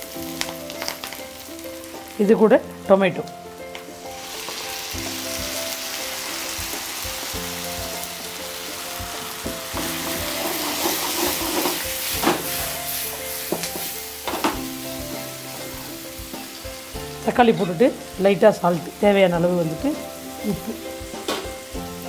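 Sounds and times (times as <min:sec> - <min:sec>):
vegetables sizzling in oil: 0:00.0 - 0:22.0
spatula scraping pan: 0:09.2 - 0:14.6.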